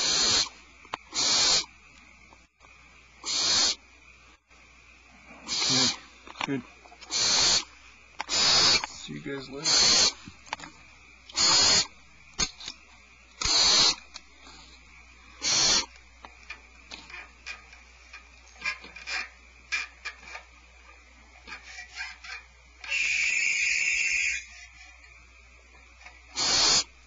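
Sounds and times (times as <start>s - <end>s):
owl nestlings hissing: 0.0s - 2.2s, 3.2s - 4.4s, 5.2s - 16.1s, 21.5s - 25.0s, 26.3s - 27.0s
birds scratching and clicking: 15.7s - 20.5s, 21.4s - 23.1s.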